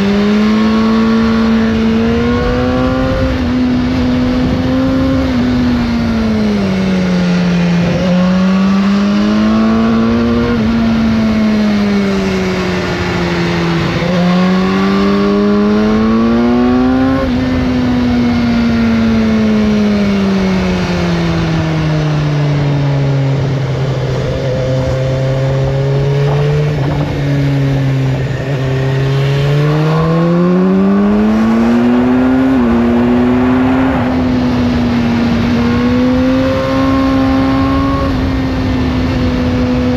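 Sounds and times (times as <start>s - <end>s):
motorcycle engine revving: 0.0s - 39.9s
wind noise: 0.0s - 39.9s.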